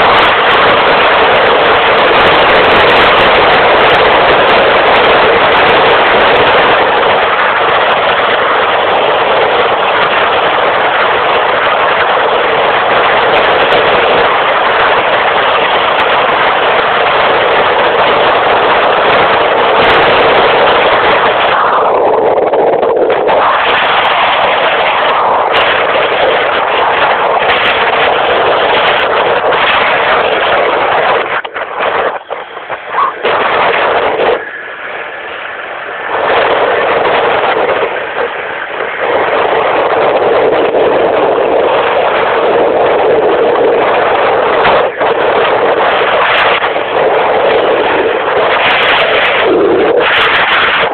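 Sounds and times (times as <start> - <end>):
motorcycle engine at high speed: 0.0 - 50.9
wind noise: 0.0 - 50.9.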